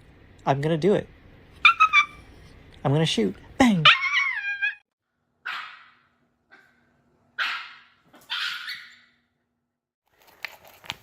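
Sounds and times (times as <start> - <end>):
dog barking: 5.4 - 6.8, 7.4 - 9.1.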